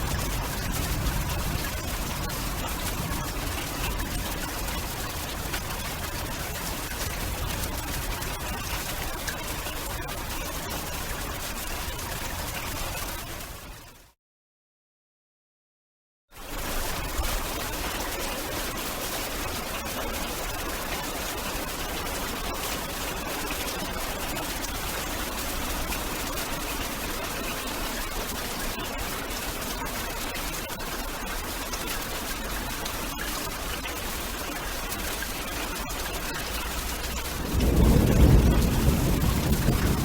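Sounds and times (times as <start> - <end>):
steady rain hiss: 0.0 - 11.7, 31.6 - 40.0.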